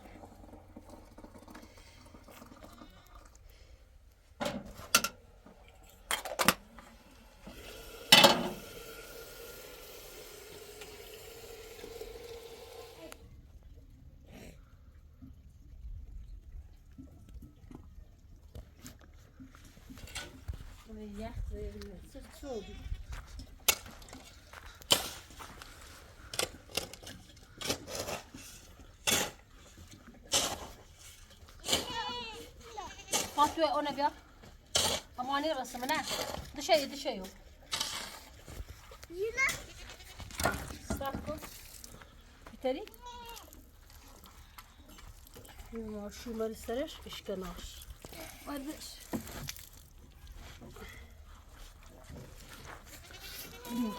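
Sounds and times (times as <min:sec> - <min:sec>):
water pouring: 0:00.0 - 0:03.7, 0:06.8 - 0:13.2, 0:40.3 - 0:42.4, 0:43.3 - 0:52.1
metal pots clattering: 0:07.6 - 0:09.0.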